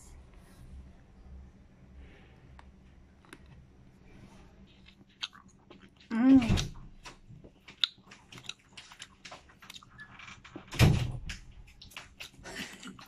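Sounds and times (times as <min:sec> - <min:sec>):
chewing and mouth smacking: 0:04.7 - 0:10.7, 0:11.6 - 0:13.0.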